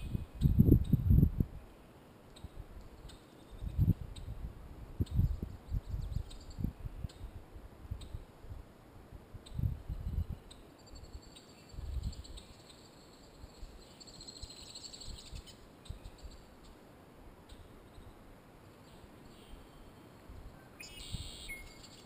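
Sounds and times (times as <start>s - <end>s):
small bird singing: 5.0s - 7.3s, 9.4s - 16.8s, 20.6s - 22.0s.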